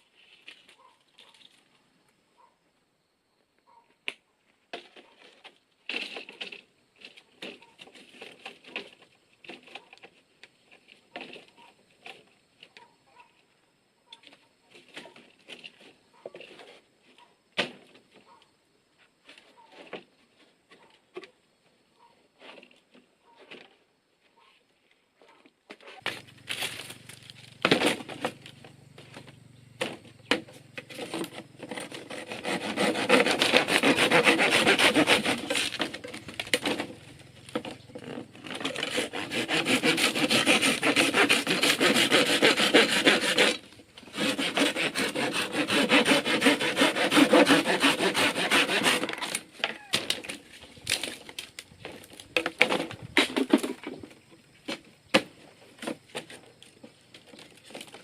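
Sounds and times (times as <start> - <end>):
saw cutting wood: 26.0 - 50.3.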